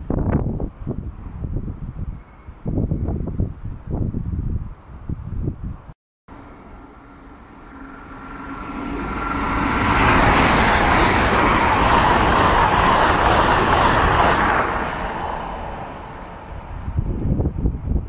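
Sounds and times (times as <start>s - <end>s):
train passing by: 6.3s - 18.0s.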